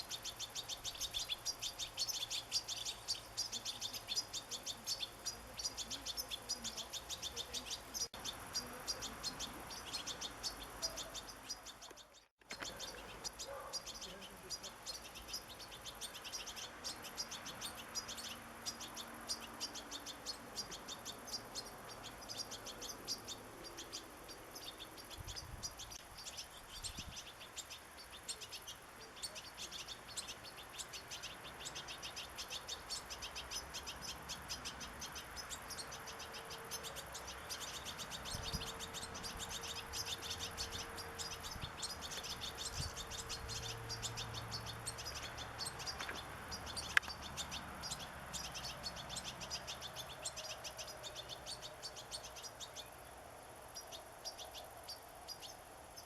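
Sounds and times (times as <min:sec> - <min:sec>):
goldfinch twittering: 0:00.0 - 0:56.0.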